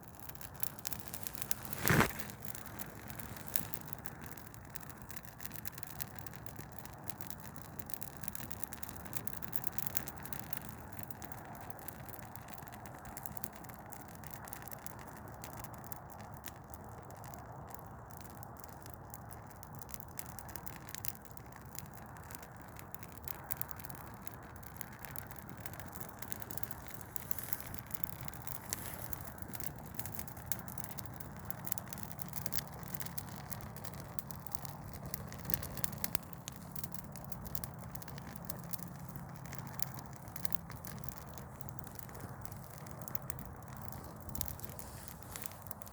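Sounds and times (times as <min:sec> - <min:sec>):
tree burning with crackling pops: 0:00.0 - 0:45.9.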